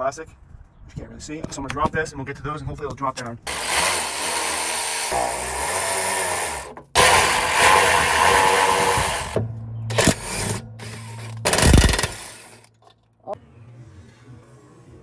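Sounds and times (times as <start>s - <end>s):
power tool running: 3.5s - 12.7s.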